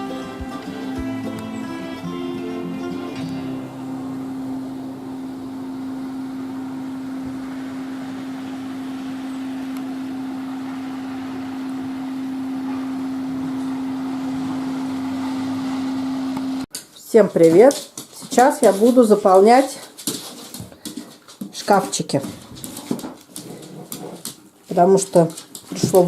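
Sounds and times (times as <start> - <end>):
steady mechanical hum: 0.0 - 16.7.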